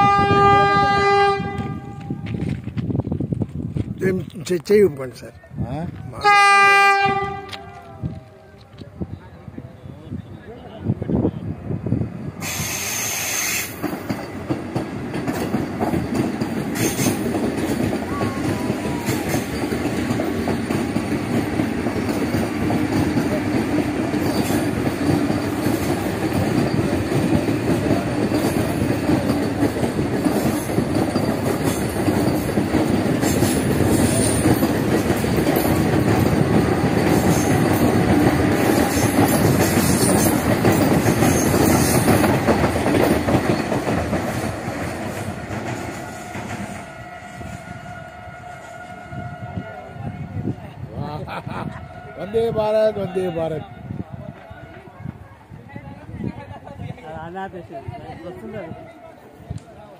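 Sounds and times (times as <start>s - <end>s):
train wheels rushing on rails: 0.0s - 59.9s
clacks over rail joints: 13.8s - 18.1s, 19.2s - 46.8s.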